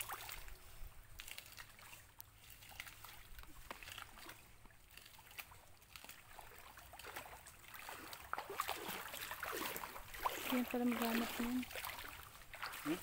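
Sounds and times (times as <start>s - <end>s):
shallow water sloshing: 0.0s - 13.0s.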